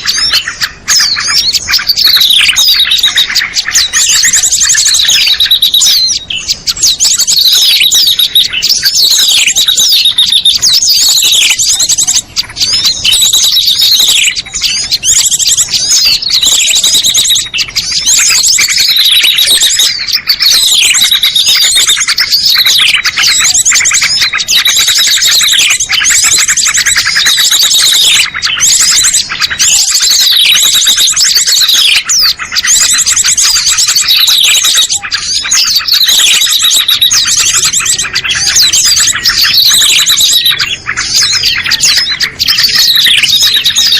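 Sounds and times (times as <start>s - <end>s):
songbirds chattering: 0.0s - 43.9s.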